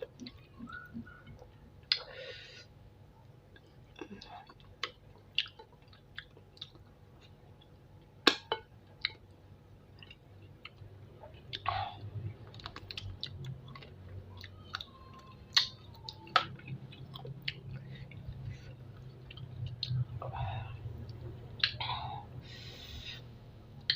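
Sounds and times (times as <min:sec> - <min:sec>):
wet mouth clicks and smacks: 0:00.1 - 0:02.1, 0:15.5 - 0:18.3, 0:19.0 - 0:20.0, 0:21.1 - 0:21.8
close chewing: 0:03.5 - 0:07.7, 0:10.0 - 0:20.2.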